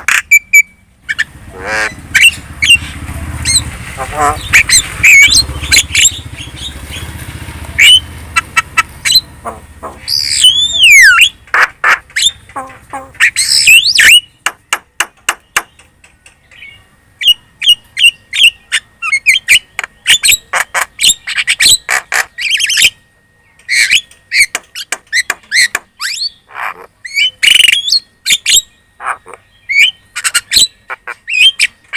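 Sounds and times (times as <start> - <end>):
myna chattering: 1.5 - 6.3, 7.8 - 13.8, 29.0 - 29.4
falling bird whistle: 10.0 - 11.4.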